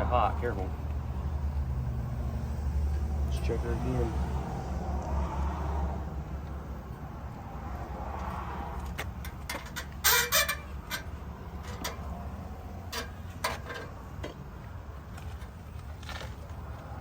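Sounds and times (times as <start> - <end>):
dipstick scraping rattle: 8.9 - 12.1.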